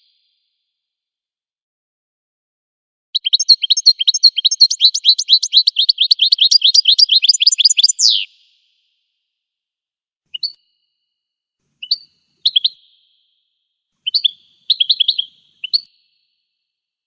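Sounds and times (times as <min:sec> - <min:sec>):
finch song twittering: 0:03.2 - 0:08.4, 0:10.3 - 0:10.9, 0:11.8 - 0:13.3, 0:14.0 - 0:16.4.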